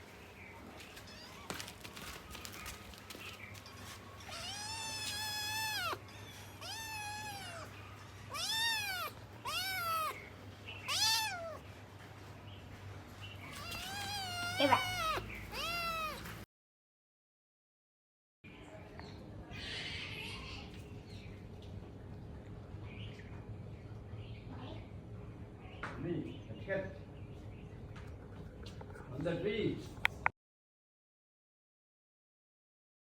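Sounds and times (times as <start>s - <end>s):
cat meowing: 1.0s - 1.9s, 4.2s - 11.6s, 13.4s - 16.4s.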